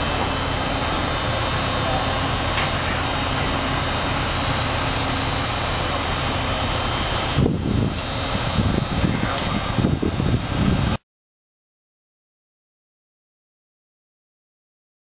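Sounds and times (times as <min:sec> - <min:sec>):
train rumbling and hissing: 0:00.0 - 0:11.0.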